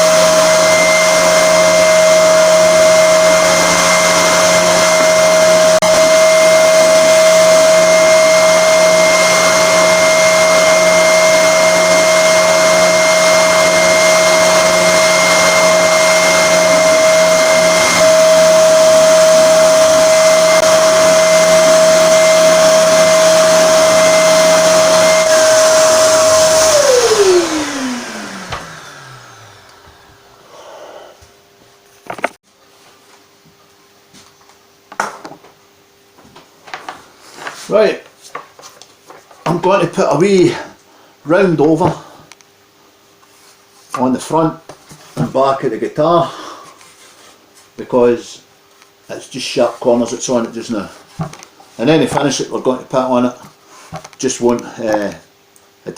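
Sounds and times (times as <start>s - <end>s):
sander motor spinning down: 0.0s - 31.2s
spindle sander whining: 0.0s - 31.3s.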